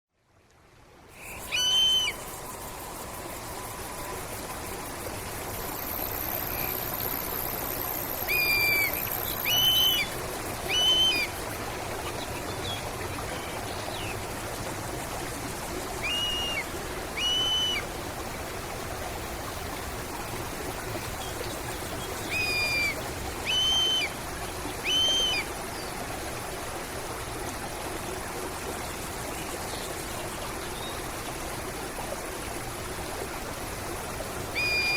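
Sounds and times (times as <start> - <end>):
stream flowing: 0.2 - 34.9
bird whistling rising notes: 1.2 - 4.3, 8.2 - 11.3, 16.0 - 17.8, 22.2 - 24.2, 24.8 - 25.5, 34.5 - 34.9.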